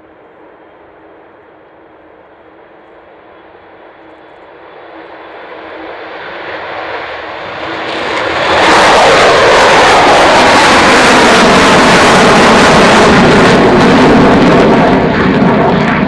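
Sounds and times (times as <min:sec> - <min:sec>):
jet bomber engines roaring: 0:00.0 - 0:16.0.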